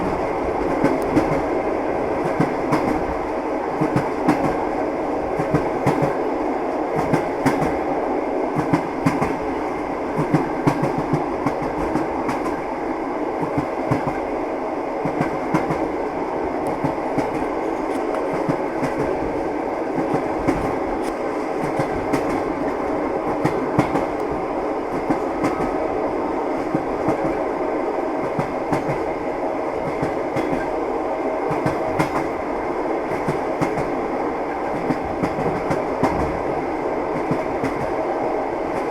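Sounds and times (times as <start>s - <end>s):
train wheels clattering over rails: 0.0s - 4.7s, 5.3s - 6.3s, 6.9s - 7.8s, 8.5s - 12.7s, 13.4s - 14.3s, 15.0s - 16.0s, 16.6s - 25.8s, 26.5s - 27.5s, 28.2s - 29.2s, 29.8s - 30.8s, 31.5s - 32.4s, 33.0s - 36.5s, 37.1s - 38.0s.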